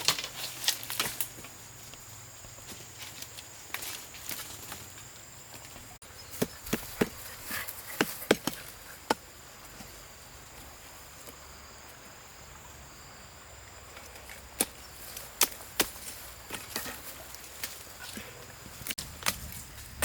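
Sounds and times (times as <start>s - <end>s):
hand tool striking wood: 6.3s - 9.3s, 14.6s - 17.8s.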